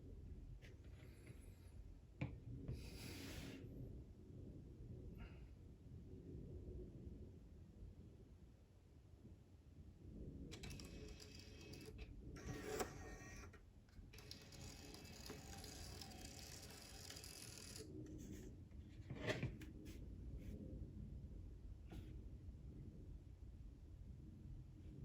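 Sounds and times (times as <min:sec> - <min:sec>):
label printer whirring: 0:10.5 - 0:18.3.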